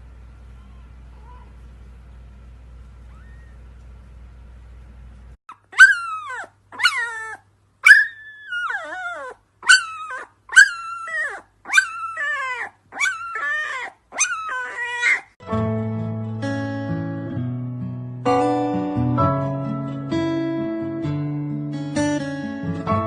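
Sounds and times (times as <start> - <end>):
animal crying out: 3.1 - 3.6, 5.5 - 15.3
acoustic guitar music: 15.4 - 23.0.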